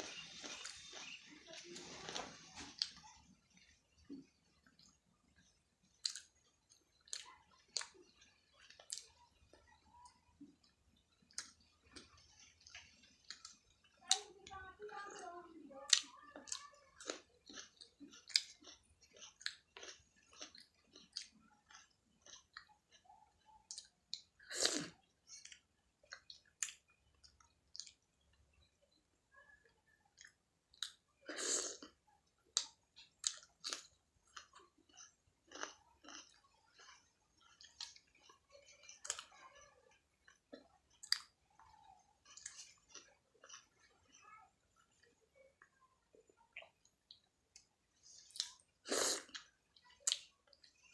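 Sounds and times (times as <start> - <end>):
wet chewing smacks: 30.2 - 39.4.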